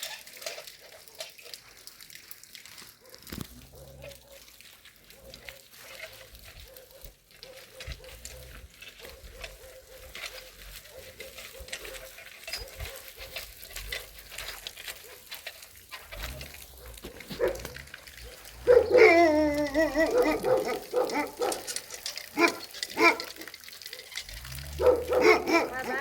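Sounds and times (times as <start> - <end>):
faint rustling: 0.0 - 26.0
dog whining bark: 5.1 - 14.1, 16.8 - 26.0.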